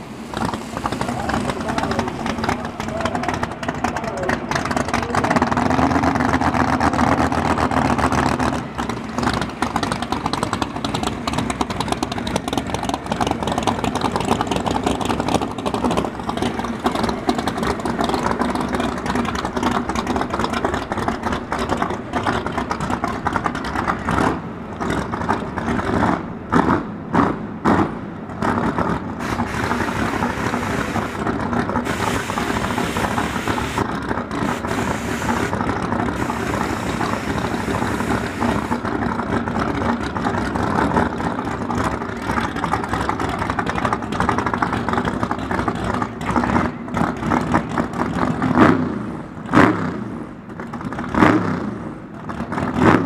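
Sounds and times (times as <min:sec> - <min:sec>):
car engine revving loudly: 0:25.8 - 0:39.2, 0:48.2 - 0:50.2, 0:51.1 - 0:51.9, 0:52.5 - 0:53.0.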